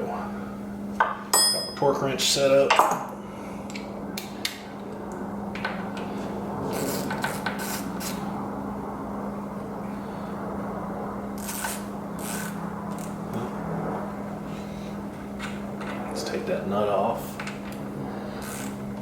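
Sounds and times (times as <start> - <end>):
steady low hum: 0.0 - 19.0
hand tool scraping and ratcheting: 6.7 - 8.2, 11.4 - 13.1.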